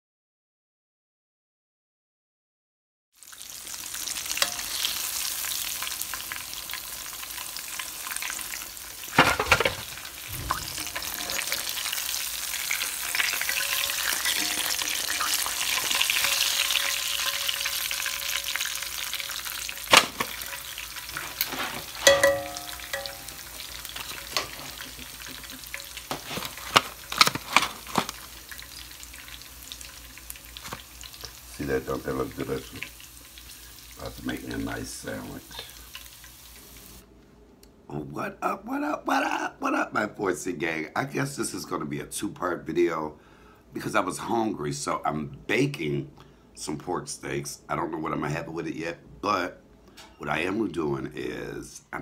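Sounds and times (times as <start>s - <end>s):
meat sizzling in hot oil: 3.2s - 37.0s
utensil knocking on pan: 22.0s - 23.6s.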